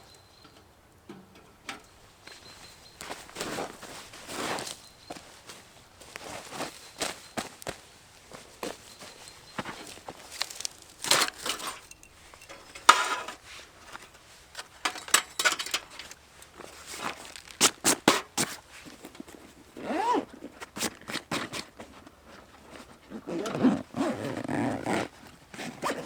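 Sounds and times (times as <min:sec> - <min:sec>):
objects being handled: 0:00.4 - 0:19.5.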